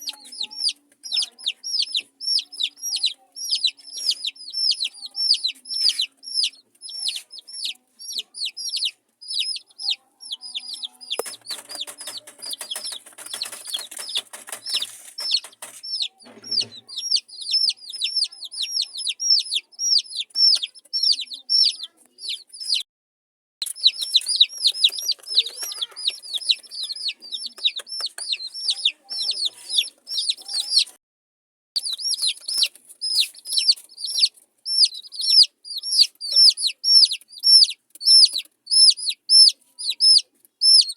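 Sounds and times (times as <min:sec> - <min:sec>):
baby chicks peeping: 0:00.0 - 0:22.9, 0:23.6 - 0:31.0, 0:31.8 - 0:40.9
rustling: 0:11.2 - 0:16.9.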